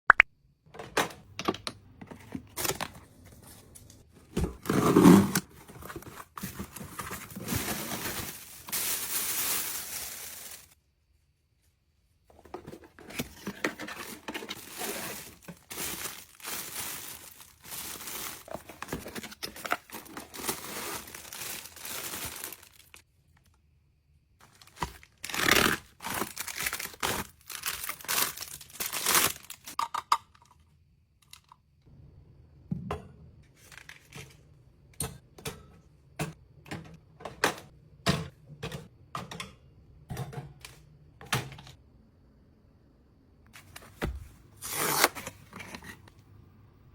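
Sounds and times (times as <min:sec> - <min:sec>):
plastic and paper crinkling: 0:04.6 - 0:10.8, 0:12.4 - 0:23.0, 0:24.4 - 0:29.8.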